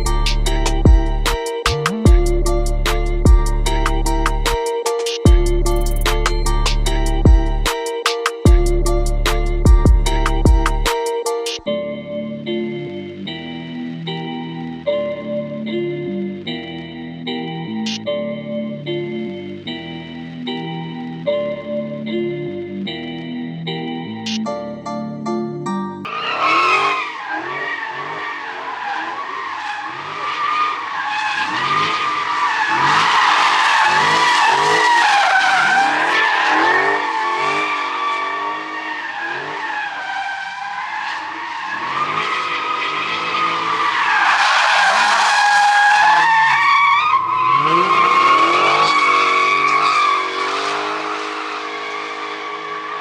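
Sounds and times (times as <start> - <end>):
car engine revving: 26.1 - 46.6, 47.2 - 53.0
tyres squealing: 26.1 - 53.0.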